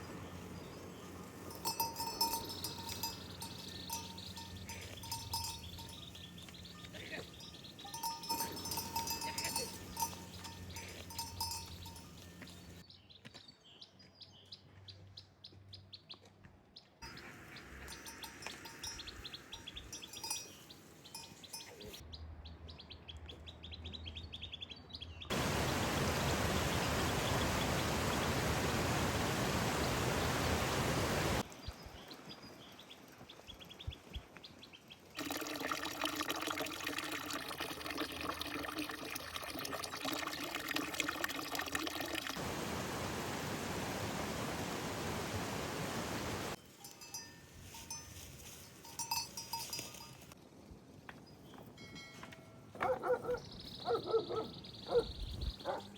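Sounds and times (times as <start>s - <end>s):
livestock bells clinking: 0.0s - 12.8s, 17.0s - 22.0s, 35.2s - 42.3s, 46.5s - 50.4s, 51.7s - 52.9s
small birds chirping: 0.0s - 22.0s, 31.4s - 35.4s, 52.8s - 55.9s
loud steady rushing hiss: 25.3s - 31.4s, 42.4s - 46.6s.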